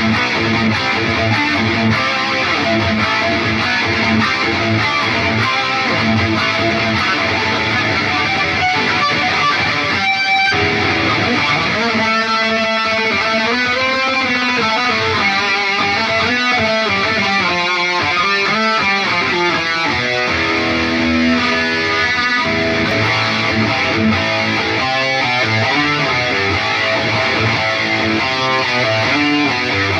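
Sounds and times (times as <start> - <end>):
distorted electric guitar lead: 0.0 - 29.9.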